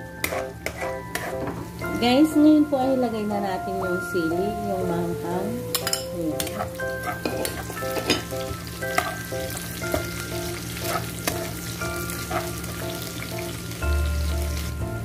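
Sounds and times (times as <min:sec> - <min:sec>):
ladle clinking and scraping wok: 0:00.2 - 0:01.7, 0:05.7 - 0:13.0
vegetables sizzling in hot oil: 0:05.0 - 0:15.0.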